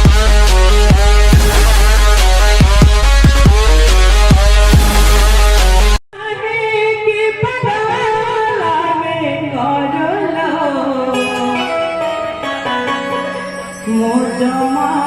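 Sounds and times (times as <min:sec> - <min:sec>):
electronic music with heavy bass: 0:00.0 - 0:06.0.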